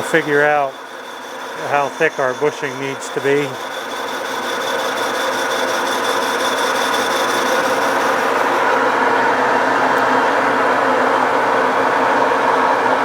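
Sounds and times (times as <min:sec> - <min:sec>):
faint high whine: 0:00.0 - 0:08.8
metal lathe cutting: 0:00.0 - 0:10.5.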